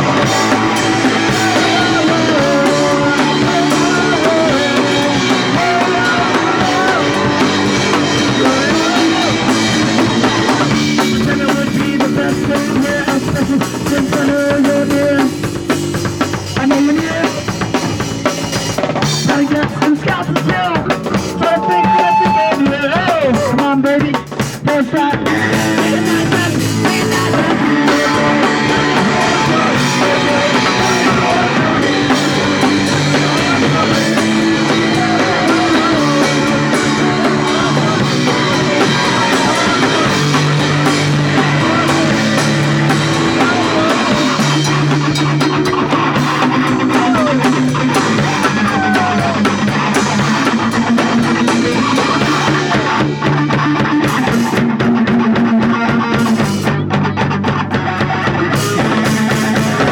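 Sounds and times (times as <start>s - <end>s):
drum hits: 0.0s - 23.5s, 25.3s - 55.0s
punk rock band playing: 0.0s - 59.9s.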